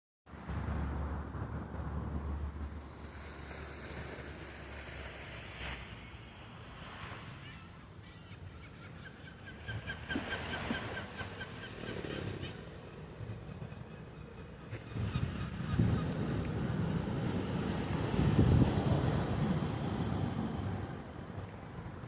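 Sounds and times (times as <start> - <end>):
wind: 0.2 - 22.0
sea waves on a beach: 0.3 - 22.0
seagull calling: 7.4 - 16.4.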